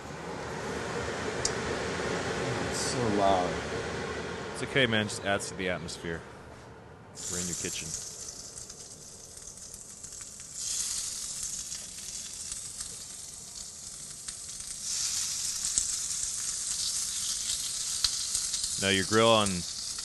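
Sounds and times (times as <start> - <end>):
skewers sizzling on grill: 7.2 - 20.0.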